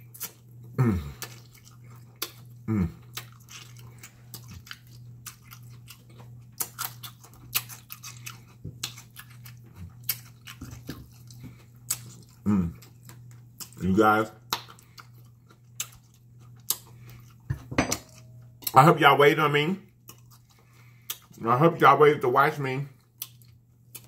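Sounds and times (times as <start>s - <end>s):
person chewing and smacking food: 0.0s - 18.9s, 19.9s - 21.4s, 22.9s - 24.0s
person humming: 0.8s - 1.2s, 2.7s - 3.0s, 12.5s - 12.8s.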